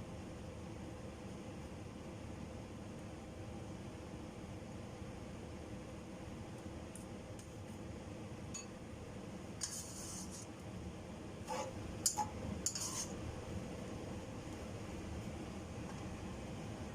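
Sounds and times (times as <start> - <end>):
low hum and hiss: 0.0 - 16.9
kitchen utensils clinking: 12.1 - 13.1.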